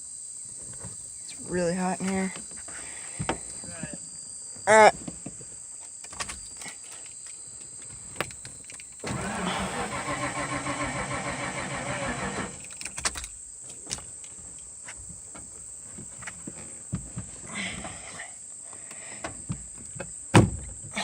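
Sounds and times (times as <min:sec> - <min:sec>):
engine cranking on starter: 0:09.0 - 0:13.0.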